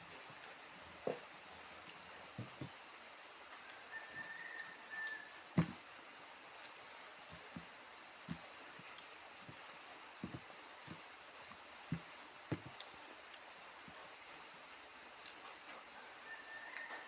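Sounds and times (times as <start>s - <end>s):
chewing clicks: 8.3s - 11.1s, 15.2s - 15.6s.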